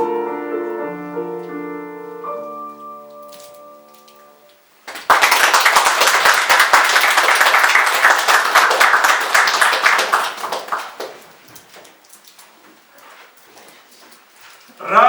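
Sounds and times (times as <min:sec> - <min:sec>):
piano notes: 0:00.0 - 0:04.8
audience applauding: 0:04.8 - 0:11.3.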